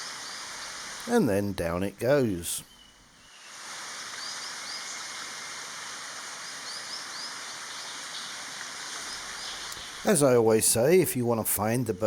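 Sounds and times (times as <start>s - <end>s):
stream rushing: 0.0s - 2.5s, 3.3s - 11.8s
small bird chirping: 2.6s - 3.6s, 9.0s - 10.1s.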